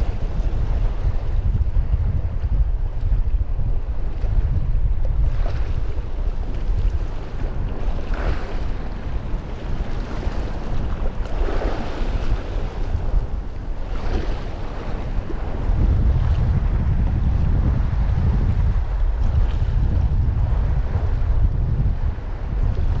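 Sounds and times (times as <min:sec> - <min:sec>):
waves washing against breakwater: 0:00.0 - 0:23.0
wind buffeting microphone: 0:00.0 - 0:23.0.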